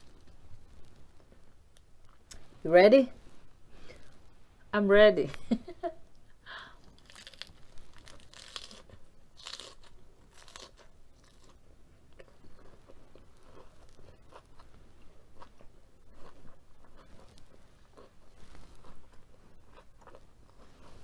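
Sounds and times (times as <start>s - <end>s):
crunchy chewing of lettuce: 6.8s - 21.0s.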